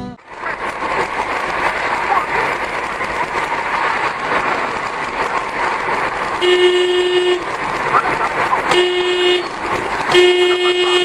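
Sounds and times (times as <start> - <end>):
road and engine hiss: 0.0 - 11.0.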